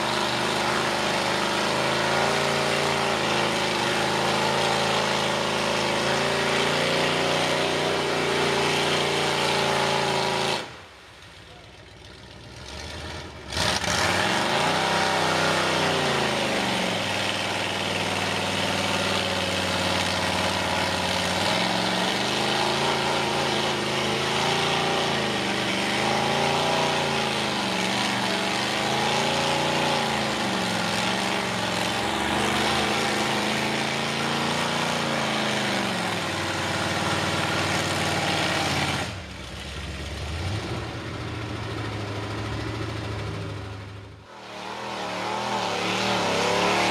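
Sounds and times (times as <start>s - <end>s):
loud engine revving: 0.0s - 10.8s, 12.6s - 46.9s.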